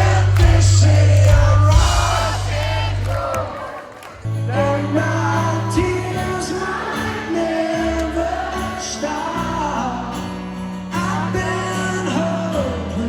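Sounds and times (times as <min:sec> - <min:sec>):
held bass notes: 0:00.0 - 0:03.4
person singing: 0:00.0 - 0:10.3, 0:10.9 - 0:13.0.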